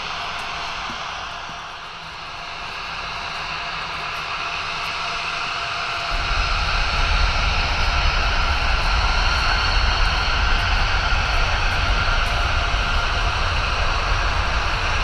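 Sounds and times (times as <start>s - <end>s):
jet engines whining: 0.0s - 15.0s
heavy low rumble: 6.1s - 15.0s.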